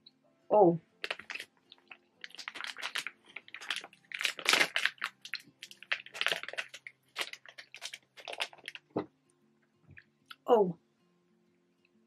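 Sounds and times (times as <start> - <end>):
person chewing gummy sweet: 1.0 - 8.8.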